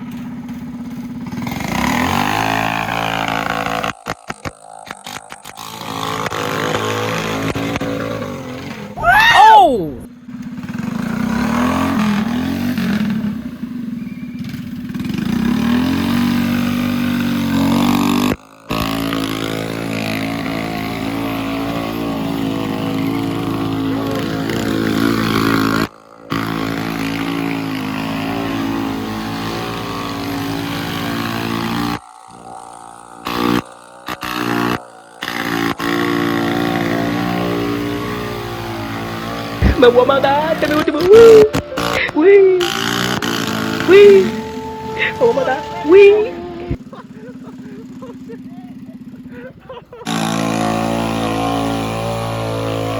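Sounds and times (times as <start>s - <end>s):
mini bike engine running: 0.0s - 52.9s.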